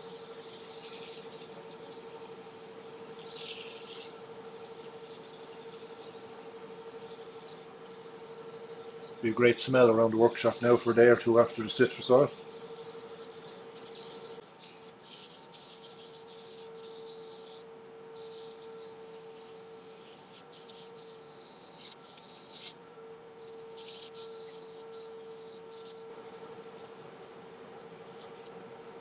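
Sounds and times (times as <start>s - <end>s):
wood lathe humming: 0.2s - 17.6s
hand rubbing spinning wood: 0.2s - 22.8s, 23.7s - 27.0s.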